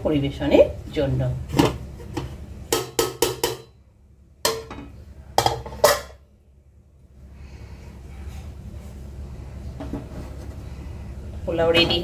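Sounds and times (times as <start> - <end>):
utensil clanking on pot: 1.5 - 3.8, 4.5 - 6.2.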